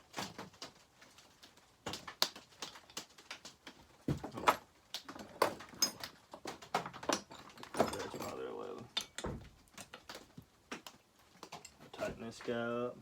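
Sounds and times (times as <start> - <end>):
metal wrenches clinking: 5.4 - 6.2, 7.0 - 9.2.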